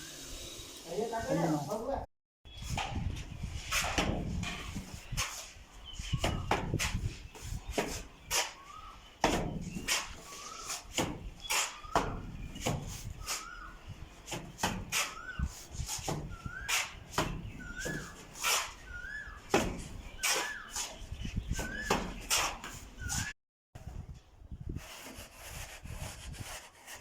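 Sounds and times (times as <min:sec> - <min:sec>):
squeaky chirp: 0:09.7 - 0:14.0, 0:14.9 - 0:19.5.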